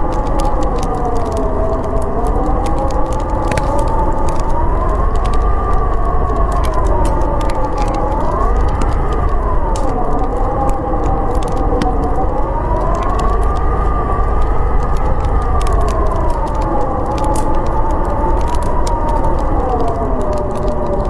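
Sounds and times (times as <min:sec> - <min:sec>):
howling blizzard wind: 0:00.0 - 0:21.0
wood fire crackling: 0:00.0 - 0:21.0.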